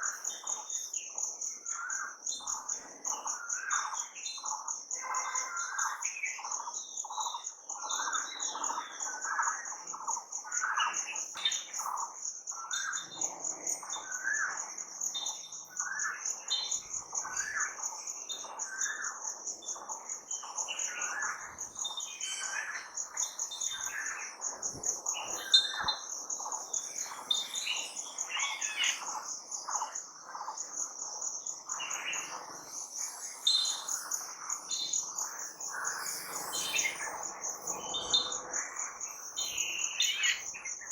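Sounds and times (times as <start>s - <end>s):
pulsing insect trill: 0.0s - 40.9s
birds chirping and calling: 12.7s - 40.9s.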